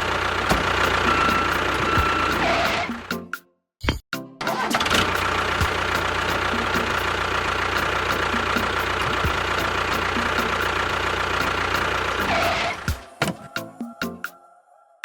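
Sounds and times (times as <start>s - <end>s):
diesel engine idling: 0.0s - 3.1s, 4.6s - 12.9s.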